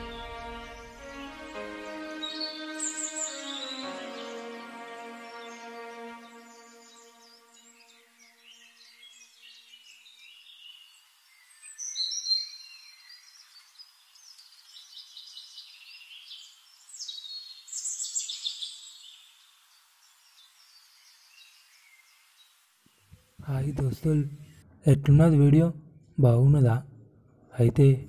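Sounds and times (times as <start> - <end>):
birds chirping and whistling: 0.0 - 10.4.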